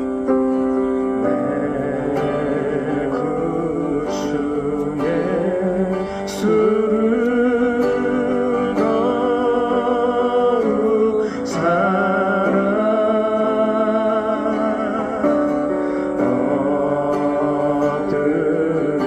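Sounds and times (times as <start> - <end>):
guitar accompaniment: 0.0 - 19.0
person singing a hymn: 0.0 - 19.0.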